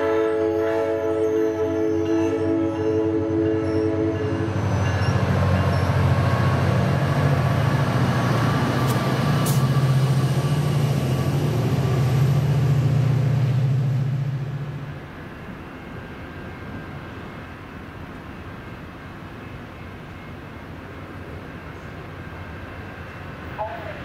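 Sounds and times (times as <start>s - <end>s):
train horn chord: 0.0s - 5.0s
locomotive engine rumble: 0.0s - 24.0s
train coaches rolling: 0.0s - 24.0s.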